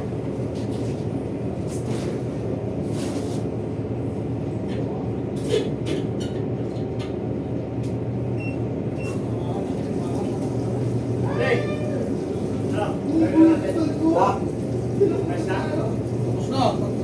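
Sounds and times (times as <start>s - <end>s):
washing machine motor hum: 0.0s - 5.4s, 6.4s - 17.0s.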